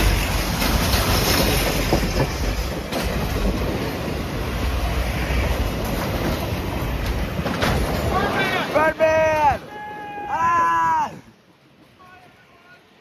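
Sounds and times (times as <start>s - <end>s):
wheels clacking over rail joints: 0.0s - 10.3s
train cars rumbling past: 0.0s - 13.0s.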